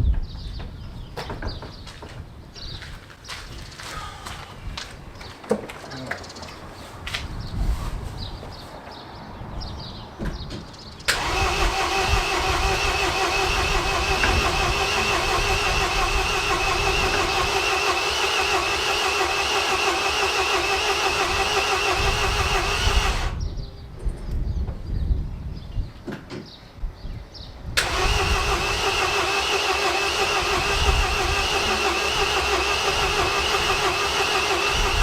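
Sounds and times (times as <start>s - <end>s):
starter motor cranking engine: 11.1s - 23.4s, 27.8s - 35.0s.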